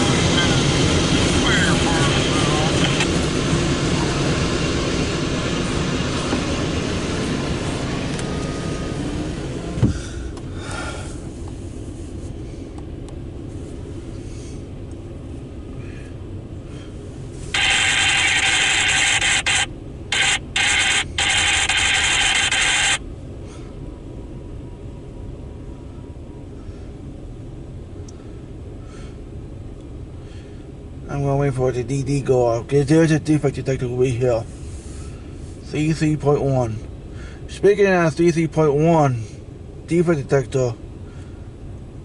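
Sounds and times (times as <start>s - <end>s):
freight train rolling past: 0.0s - 9.8s
loud high hiss: 17.4s - 23.0s.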